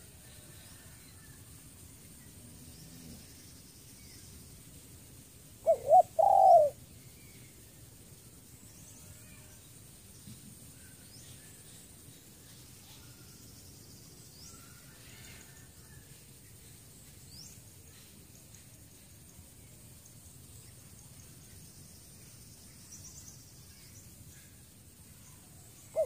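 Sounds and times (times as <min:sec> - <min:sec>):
dove cooing: 0:05.6 - 0:06.8
faint small bird chirps: 0:08.5 - 0:18.7.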